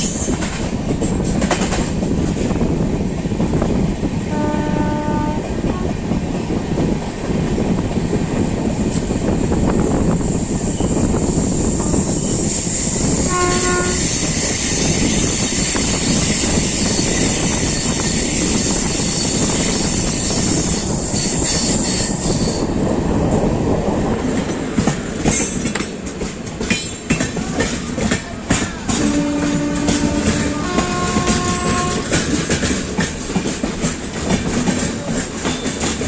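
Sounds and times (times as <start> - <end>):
train coaches rumbling: 0.0 - 36.0
train horn: 4.3 - 5.9, 13.2 - 14.4, 28.9 - 32.4
wheels clattering over rail joints: 24.2 - 36.0.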